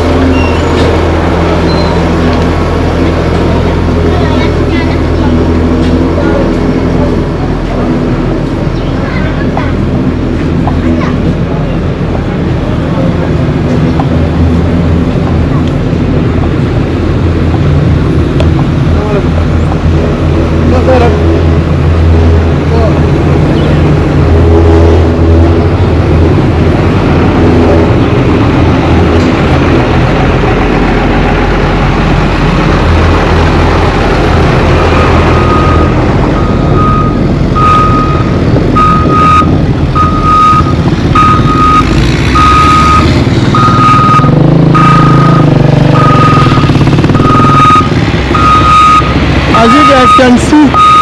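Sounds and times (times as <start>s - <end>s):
construction machinery engine rumble: 0.0s - 51.0s
reverse alarm beeping: 1.6s - 2.1s, 34.9s - 51.0s.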